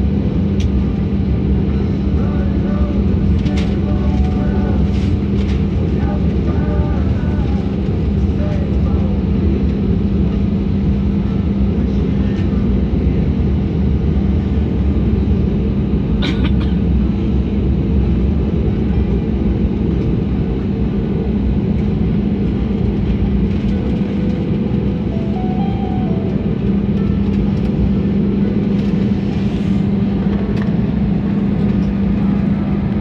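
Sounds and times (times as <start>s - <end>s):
constant low hum: 0.0s - 33.0s
jet engine and airflow rumble: 0.0s - 33.0s.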